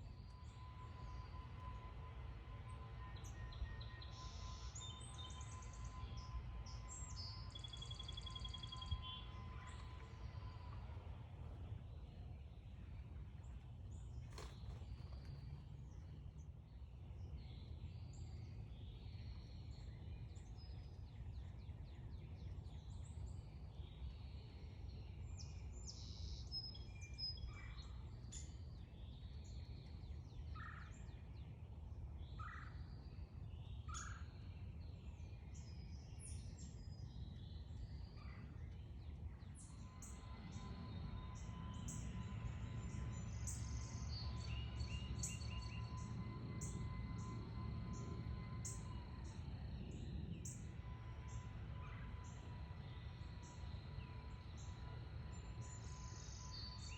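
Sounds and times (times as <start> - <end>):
songbirds chirping: 0.0 - 56.9
steady low rumble: 36.6 - 56.9.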